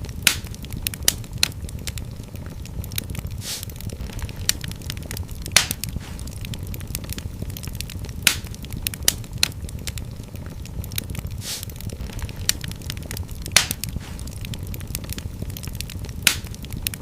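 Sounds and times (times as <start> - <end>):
fire crackling and popping: 0.0 - 17.0
low rumble of flames: 0.0 - 17.0
brief hiss of fire: 3.4 - 3.7, 5.6 - 6.3, 11.4 - 11.7, 13.6 - 14.3.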